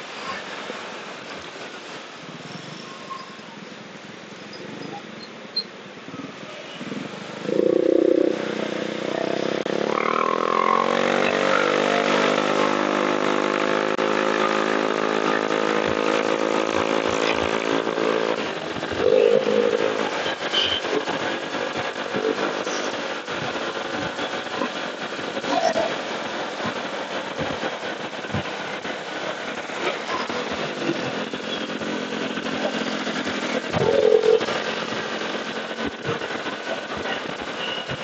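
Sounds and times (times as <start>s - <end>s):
motorcycle engine speeding up: 7.0s - 38.0s.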